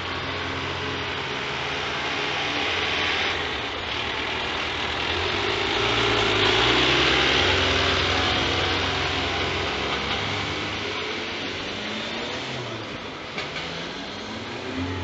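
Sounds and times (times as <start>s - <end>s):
truck diesel engine running: 0.0s - 11.8s.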